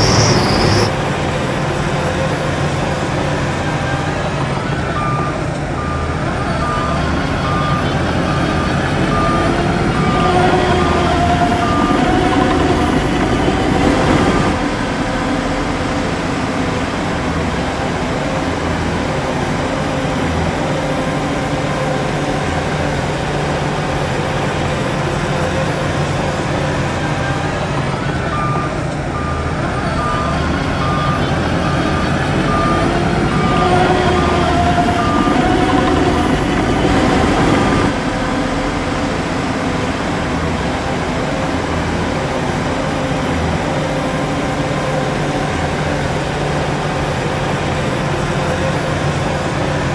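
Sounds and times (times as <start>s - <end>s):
reversing alarm beeping: 0.0s - 38.0s
heavy diesel engines under load: 0.0s - 49.9s.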